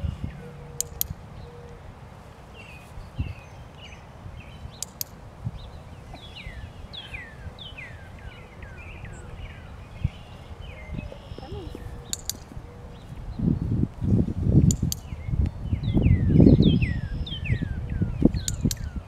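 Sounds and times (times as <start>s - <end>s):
birds chirping: 0.0s - 19.0s
sharp clicks: 0.8s - 1.2s, 4.7s - 5.2s, 12.1s - 12.5s, 14.6s - 15.2s, 18.4s - 19.0s.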